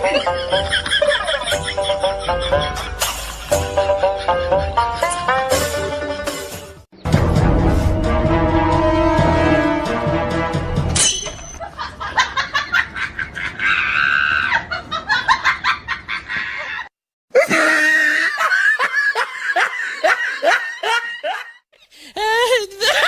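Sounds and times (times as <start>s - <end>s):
high-pitched shrieking laughter: 13.2s - 14.9s, 16.1s - 21.4s.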